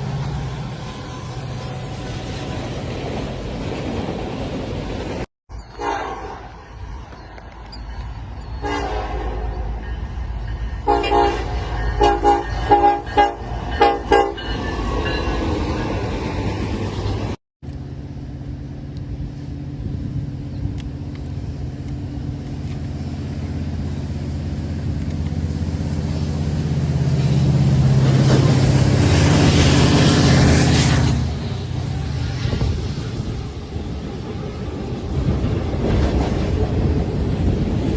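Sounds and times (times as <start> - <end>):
low train rumble: 0.0 - 37.9
locomotive air horn blasts: 5.8 - 6.5, 8.6 - 9.5, 10.8 - 14.4.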